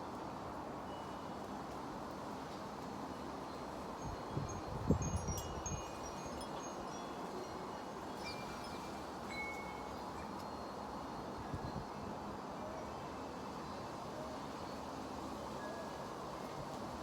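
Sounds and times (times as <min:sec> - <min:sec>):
wind chimes ringing: 0:03.5 - 0:14.9.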